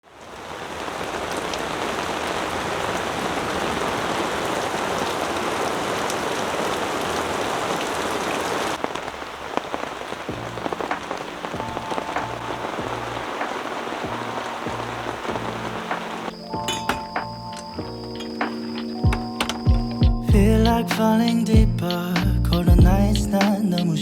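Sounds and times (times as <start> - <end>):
heavy rain pouring: 0.0 - 24.0
light rain drops: 0.0 - 24.0
faint music tones: 10.1 - 24.0.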